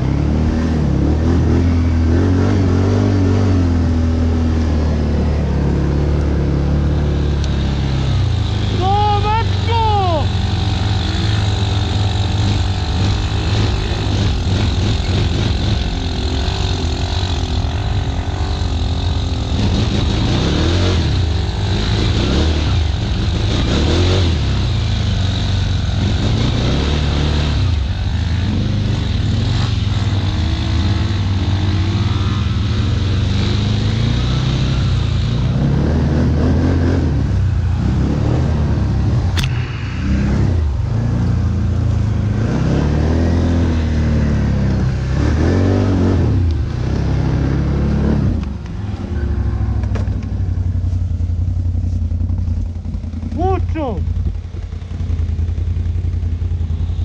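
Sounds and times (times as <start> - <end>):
atv engine revving: 0.0 - 57.0
sharp click: 39.3 - 39.9.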